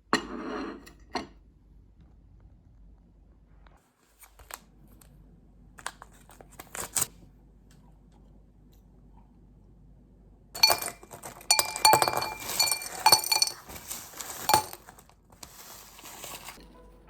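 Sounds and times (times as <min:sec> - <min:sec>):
tableware clinking: 0:10.6 - 0:15.0.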